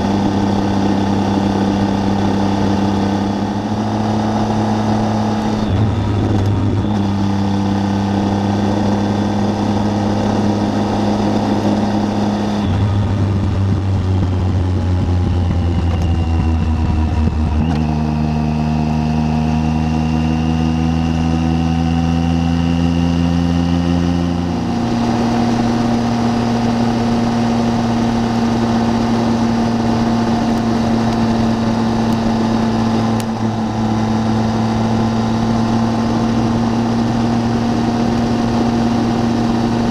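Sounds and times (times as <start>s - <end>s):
wind noise: 0.0s - 18.1s
motorcycle engine running: 0.0s - 39.9s.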